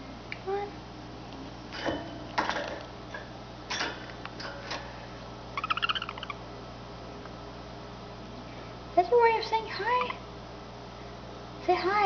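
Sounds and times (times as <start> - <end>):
pet bird chattering call: 5.6 - 6.4, 9.8 - 10.2.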